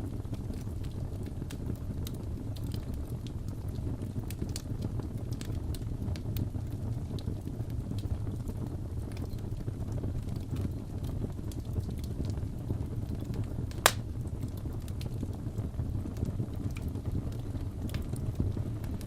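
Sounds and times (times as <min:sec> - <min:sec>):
fire rumbling in fireplace: 0:00.0 - 0:19.0
wood popping and crackling: 0:13.2 - 0:14.8.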